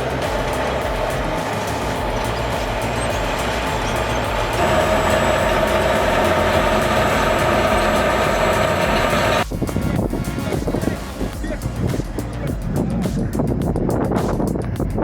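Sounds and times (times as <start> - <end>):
whining tone: 0.0 - 9.4
diesel machinery running: 0.0 - 13.0.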